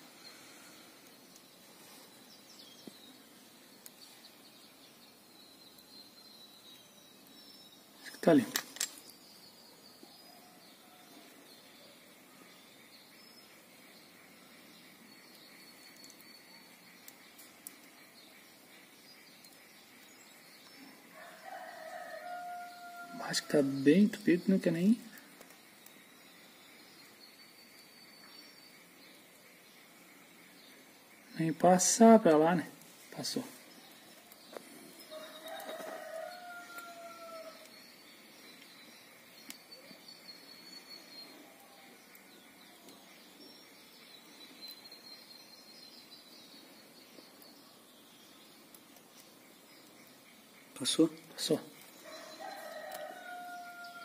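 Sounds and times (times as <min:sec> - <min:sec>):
faint outdoor hiss: 0:00.0 - 0:54.0
rooster crowing: 0:21.1 - 0:23.6, 0:35.1 - 0:37.7, 0:52.0 - 0:54.0.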